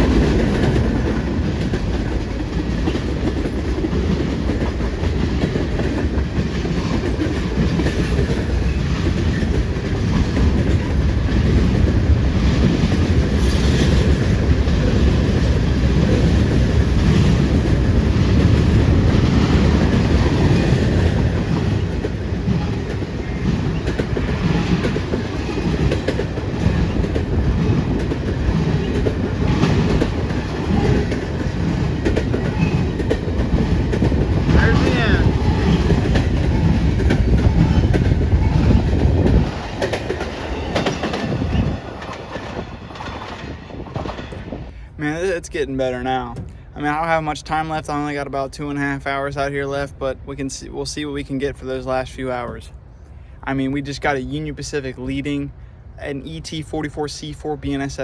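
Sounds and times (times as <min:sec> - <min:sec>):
wheels clicking over rail joints: 0:00.0 - 0:44.7
freight train rumbling past: 0:00.0 - 0:58.0.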